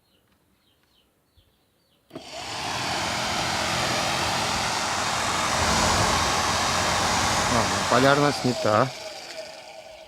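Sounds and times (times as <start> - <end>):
blower fan motor whirring: 2.1 - 10.0.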